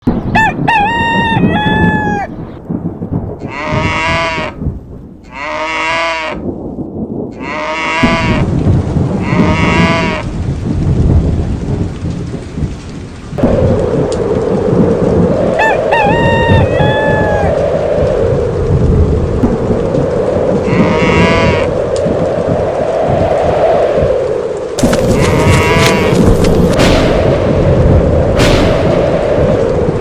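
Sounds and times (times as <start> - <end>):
rolling thunder: 0.0 - 5.2, 6.4 - 30.0
rain: 0.0 - 30.0
animal bleating: 3.4 - 4.5, 5.2 - 6.4, 7.3 - 8.4, 9.2 - 10.2, 20.7 - 21.7, 25.1 - 26.2.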